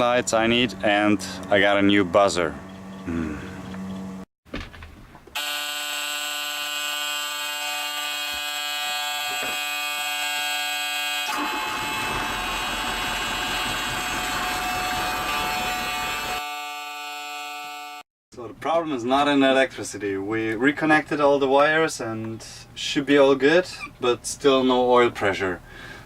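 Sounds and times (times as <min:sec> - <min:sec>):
diesel engine rumble: 0:00.0 - 0:04.2, 0:11.2 - 0:16.4
warning buzzer: 0:05.4 - 0:18.1.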